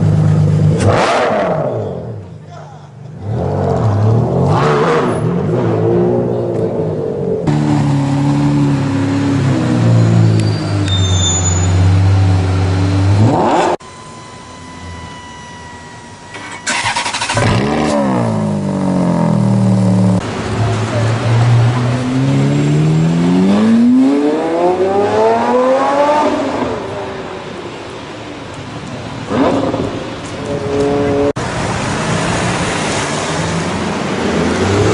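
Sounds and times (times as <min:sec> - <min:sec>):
sports car engine revving: 0:00.0 - 0:01.9, 0:12.5 - 0:13.8, 0:16.7 - 0:20.4, 0:21.0 - 0:27.0
car accelerating hard: 0:16.7 - 0:27.0.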